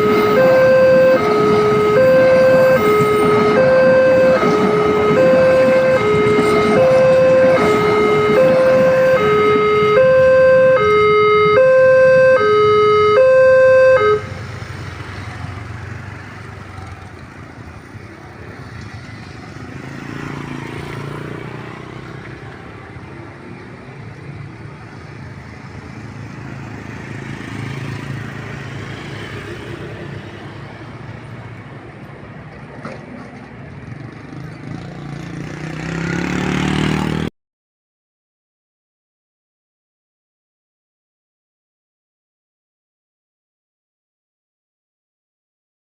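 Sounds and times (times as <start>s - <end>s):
level crossing two-tone alarm: 0.0s - 14.3s
low rumble of road vehicles: 0.0s - 37.3s.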